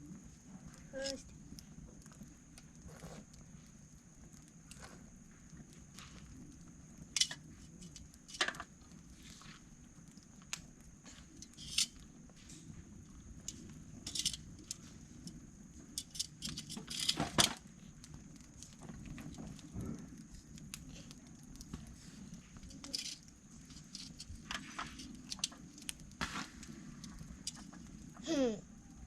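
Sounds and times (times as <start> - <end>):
sticks and metal tongs clattering: 14.1 - 14.8.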